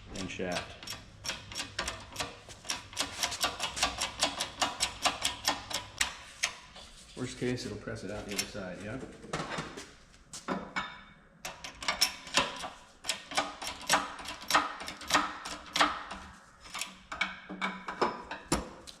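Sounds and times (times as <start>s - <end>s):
metal knocks and clicks: 0.5s - 6.6s.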